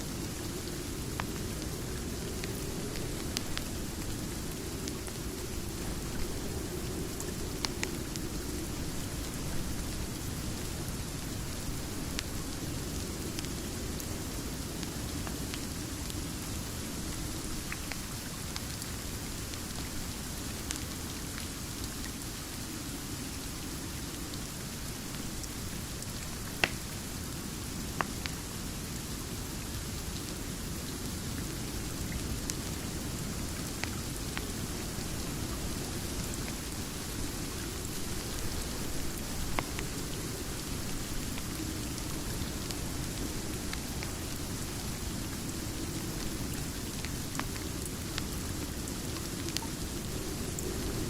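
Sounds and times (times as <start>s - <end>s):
steady rain: 0.0s - 51.0s
wood fire crackling: 0.1s - 21.4s, 26.0s - 28.4s, 31.4s - 51.0s.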